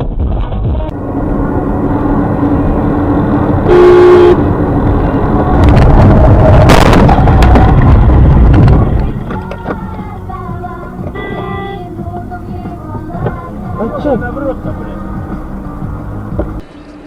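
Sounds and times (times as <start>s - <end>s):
car traffic from inside car: 0.9s - 17.0s
car horn blast: 3.6s - 4.6s, 11.1s - 11.9s
sudden loud burst: 5.7s - 7.6s.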